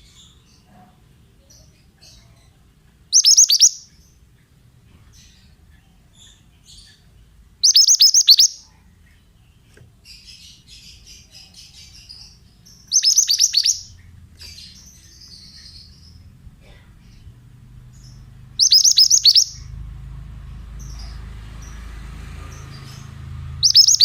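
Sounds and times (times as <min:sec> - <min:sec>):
bird whistled song: 0:03.1 - 0:04.0, 0:07.6 - 0:08.7, 0:11.9 - 0:16.2, 0:18.0 - 0:19.7, 0:22.9 - 0:24.0
bird scratchy twittering: 0:03.2 - 0:03.9, 0:07.6 - 0:08.6, 0:11.8 - 0:16.2, 0:18.0 - 0:19.8, 0:22.5 - 0:24.0.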